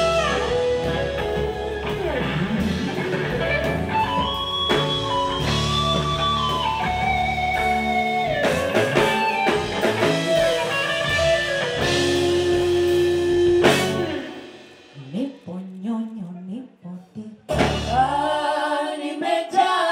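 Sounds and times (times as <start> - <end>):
guitar melody: 0.0 - 14.9
drums: 0.0 - 16.2, 17.4 - 19.0.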